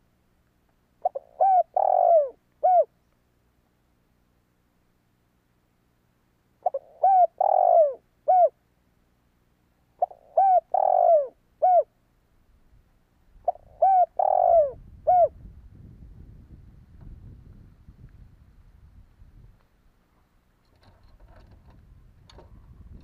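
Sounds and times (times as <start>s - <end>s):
faint low rumble: 0.0s - 23.0s
dove cooing: 1.0s - 2.9s, 6.6s - 8.6s, 10.0s - 11.9s, 13.4s - 15.4s.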